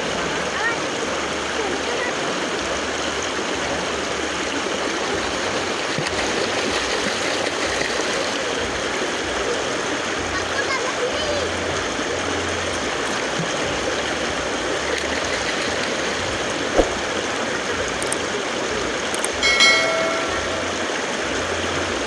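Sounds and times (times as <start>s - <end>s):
river water rushing: 0.6s - 22.0s
single knock: 16.8s - 17.1s
brief pitched tone: 19.4s - 21.4s.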